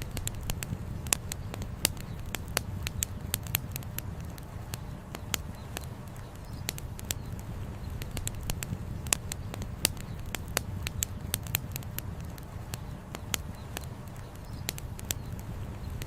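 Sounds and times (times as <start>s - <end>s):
low steady rumble: 0.0s - 16.0s
sharp pops: 0.0s - 16.0s
wood fire crackling: 0.0s - 16.0s.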